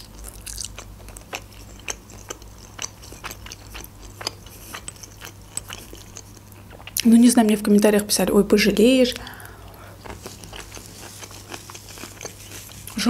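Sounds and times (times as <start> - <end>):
wet chewing mouth clicks: 0.0 - 7.1, 9.1 - 13.0.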